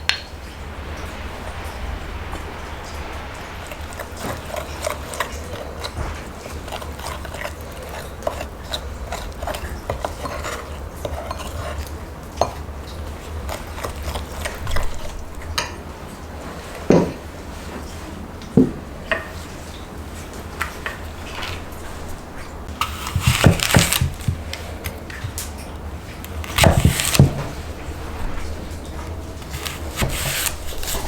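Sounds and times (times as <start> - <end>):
utensils scraping in a bowl: 3.6 - 15.8, 20.6 - 25.5, 26.2 - 27.6, 29.0 - 31.0.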